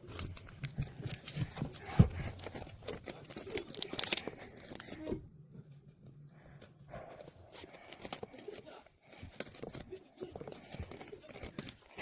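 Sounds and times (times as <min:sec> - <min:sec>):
paper or plastic crinkling: 0:00.0 - 0:05.1, 0:07.5 - 0:12.0.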